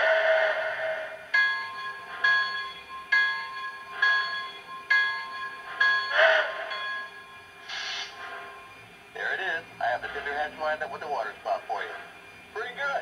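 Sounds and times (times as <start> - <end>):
steam locomotive bell ringing: 0.0 - 13.0
short hiss: 7.6 - 8.5.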